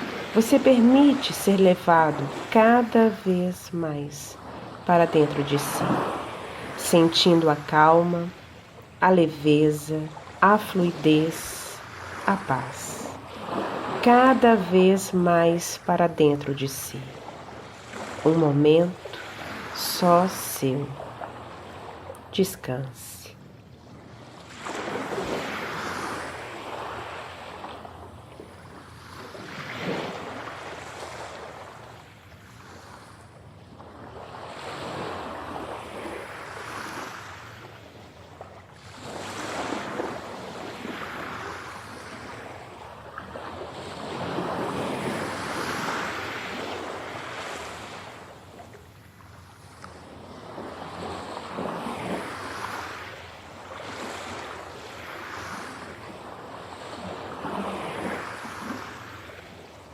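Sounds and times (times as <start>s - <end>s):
ocean waves breaking on shore: 0.0s - 59.9s.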